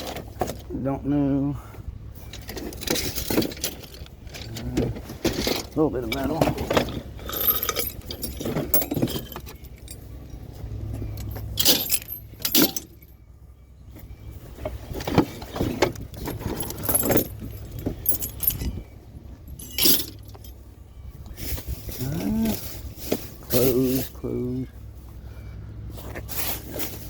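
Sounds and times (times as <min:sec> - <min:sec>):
vehicle idling hum: 0:00.0 - 0:27.0
scrap metal clinking and clattering: 0:02.2 - 0:13.2, 0:14.6 - 0:20.6.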